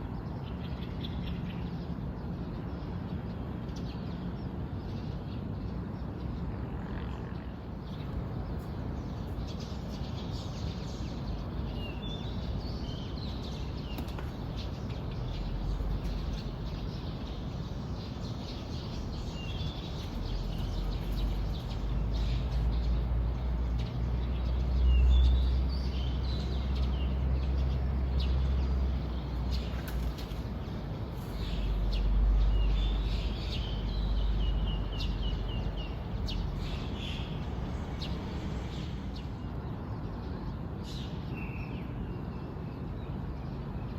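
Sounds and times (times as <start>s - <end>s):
birds chirping and calling: 7.8s - 39.4s.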